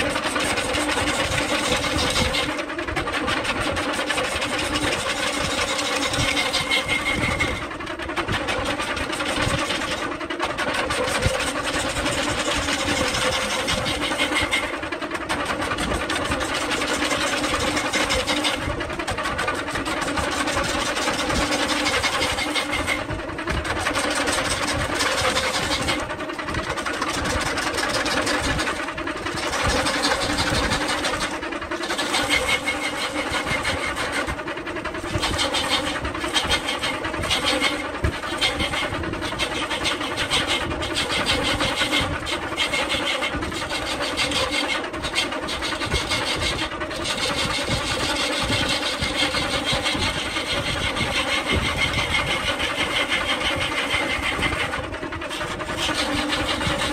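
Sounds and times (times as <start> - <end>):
gouge scraping on wood: 0.0 - 7.6, 8.4 - 10.0, 10.6 - 23.0, 23.7 - 34.4, 35.1 - 56.9
lathe motor hum: 0.0 - 56.9.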